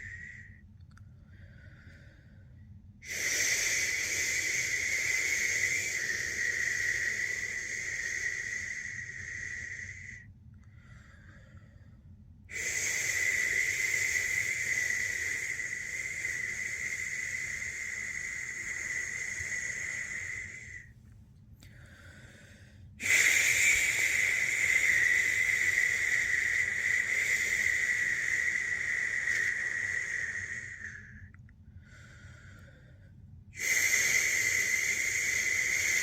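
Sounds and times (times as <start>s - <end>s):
person shushing: 12.5s - 20.8s.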